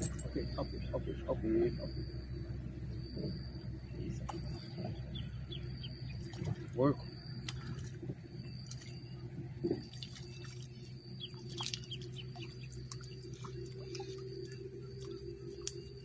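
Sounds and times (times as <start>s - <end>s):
birds chirping: 0.0s - 16.0s
steady low hum: 0.0s - 16.0s
drip-like ticks: 4.1s - 4.8s, 7.4s - 16.0s.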